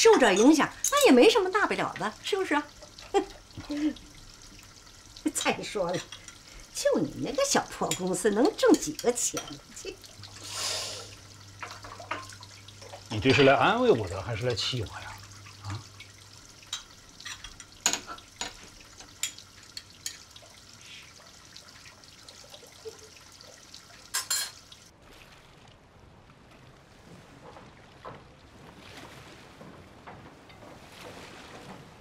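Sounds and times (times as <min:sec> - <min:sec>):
water trickling: 0:00.0 - 0:25.7
steady hiss: 0:10.2 - 0:12.0.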